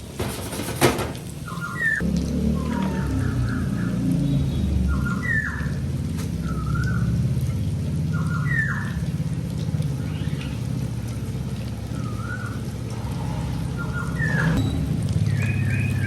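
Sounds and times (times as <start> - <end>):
gliding whistled calls: 1.4 - 7.3, 8.0 - 16.0
low rumble: 11.2 - 16.0.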